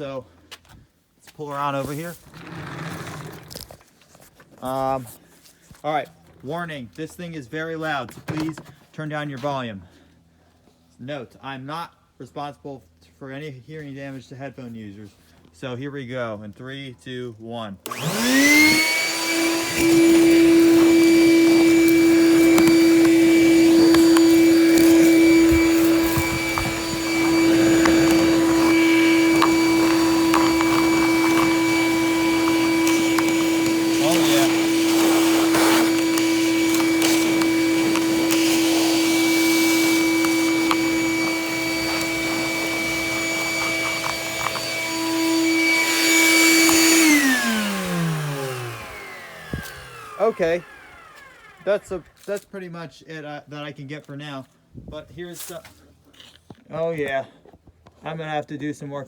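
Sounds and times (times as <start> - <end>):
shop vacuum running: 17.8 - 52.2.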